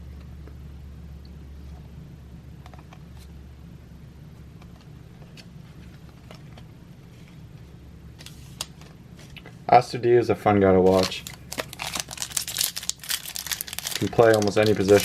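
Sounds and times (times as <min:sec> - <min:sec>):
steady low hum: 0:00.0 - 0:15.0
trading cards being flipped: 0:08.2 - 0:09.5, 0:10.9 - 0:15.0.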